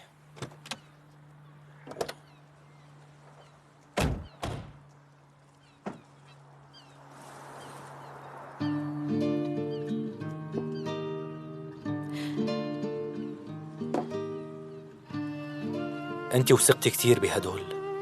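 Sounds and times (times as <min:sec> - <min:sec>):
short thuds and knocks: 0:13.9 - 0:14.2.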